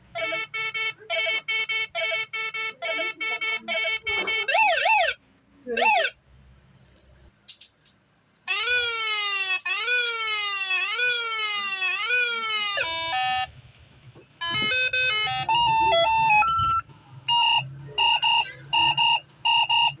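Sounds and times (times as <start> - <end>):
toy electronic siren: 0.1 - 5.2, 5.8 - 6.2, 8.5 - 13.5, 14.4 - 20.0
electronic beeps: 14.5 - 20.0.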